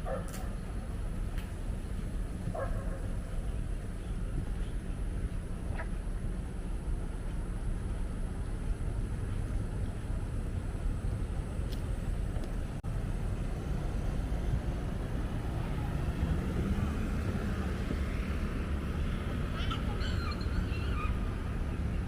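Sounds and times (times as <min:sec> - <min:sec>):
city traffic rumble: 0:00.0 - 0:22.0
passing vehicle engine: 0:12.9 - 0:22.0.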